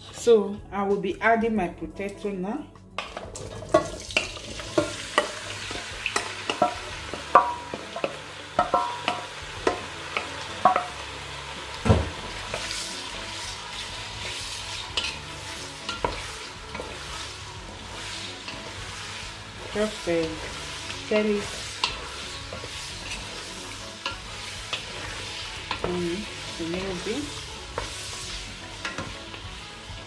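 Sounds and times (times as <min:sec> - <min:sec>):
potatoes sizzling in oil: 0:03.0 - 0:30.0
wooden spoon knocking on metal: 0:06.5 - 0:10.9.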